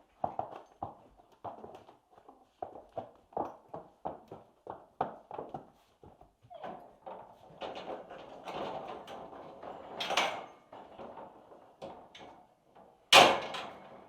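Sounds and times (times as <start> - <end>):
sliding door rattling on track: 13.2 - 14.0.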